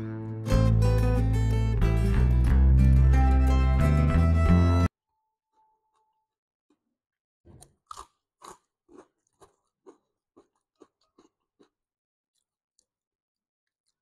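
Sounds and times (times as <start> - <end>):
person chewing crunchy food: 7.5 - 14.0.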